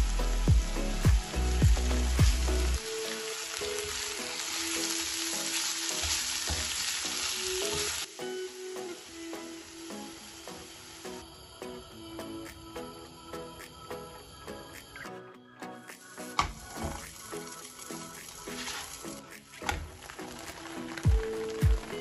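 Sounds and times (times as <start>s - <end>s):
chicken sizzling in oil: 0.0s - 11.3s, 16.0s - 22.0s
background music: 0.0s - 22.0s.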